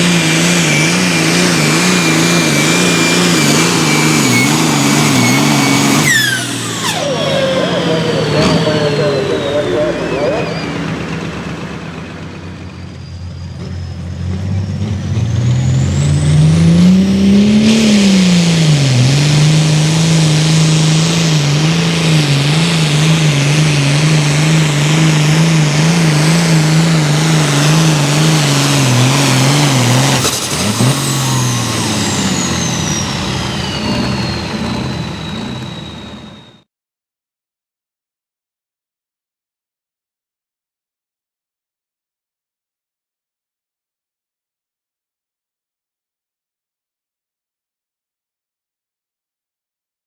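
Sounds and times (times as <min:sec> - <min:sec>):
turbo whistling: 0:00.0 - 0:17.0, 0:18.8 - 0:36.7
diesel tractor engine at full throttle: 0:00.0 - 0:36.7.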